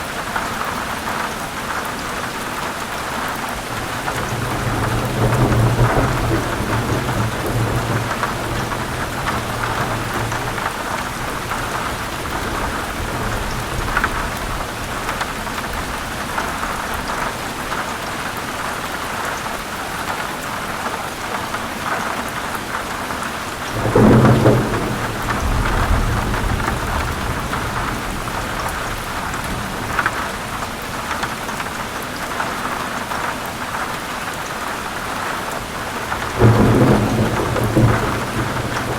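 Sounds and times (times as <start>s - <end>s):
heavy rain: 0.0s - 38.9s
thunder rumbling: 3.7s - 17.2s, 23.5s - 31.1s, 35.9s - 38.9s
sharp thunderclap: 4.0s - 16.6s, 23.7s - 30.6s, 36.1s - 38.9s.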